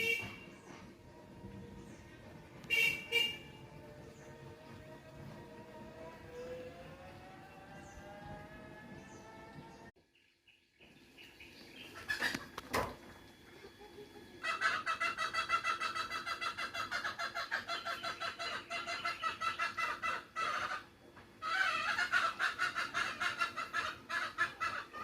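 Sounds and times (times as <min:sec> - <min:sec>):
rapid bird calls: 0:11.0 - 0:12.7, 0:14.4 - 0:25.0.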